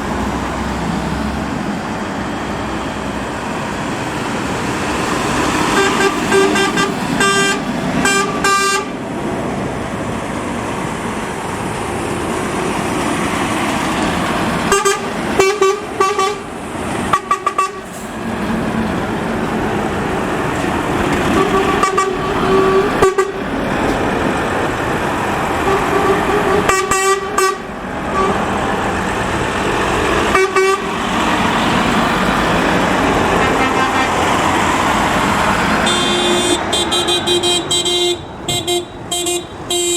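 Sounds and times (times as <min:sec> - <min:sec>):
trucks driving past: 0:00.0 - 0:39.9
truck horns tooting: 0:05.1 - 0:09.0, 0:14.6 - 0:18.7, 0:20.4 - 0:24.3, 0:25.1 - 0:39.9.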